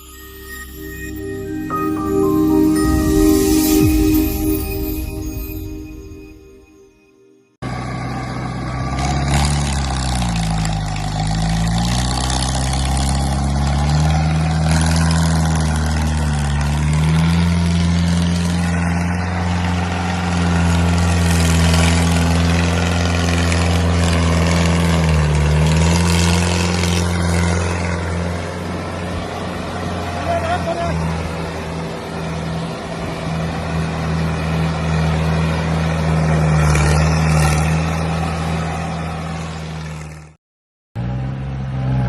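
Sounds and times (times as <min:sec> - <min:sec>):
tractor diesel engine under load: 0:07.6 - 0:40.4.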